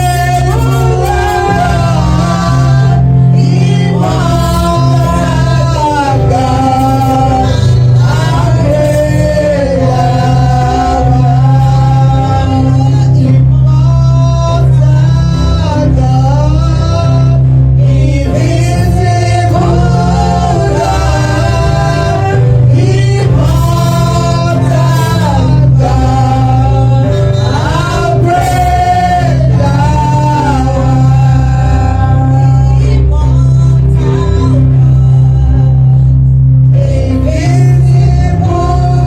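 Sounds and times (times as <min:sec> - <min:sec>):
bass-heavy band: 0:00.0 - 0:39.0
man singing lead: 0:00.0 - 0:39.0
backing voices: 0:17.8 - 0:35.8.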